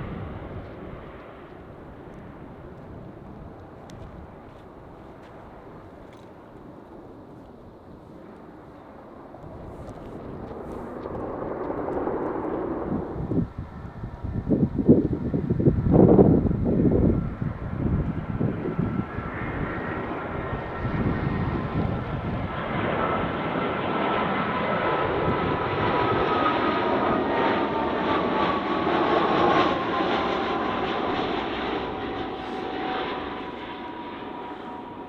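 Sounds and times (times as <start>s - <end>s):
jet airliner passing overhead: 0.0s - 35.0s.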